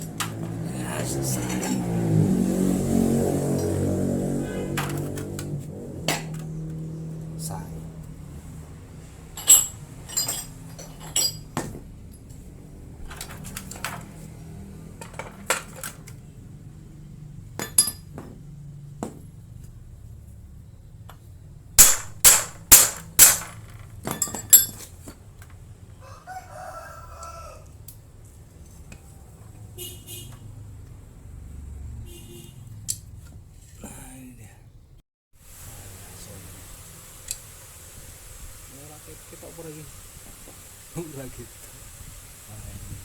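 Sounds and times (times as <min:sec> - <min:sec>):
sharp metallic clinks: 0:09.4 - 0:11.5, 0:24.2 - 0:24.8
rooster crowing: 0:25.9 - 0:27.9.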